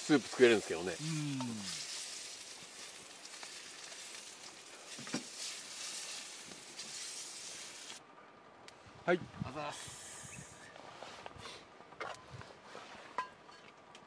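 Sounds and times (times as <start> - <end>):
food sizzling over campfire: 0.0 - 8.0.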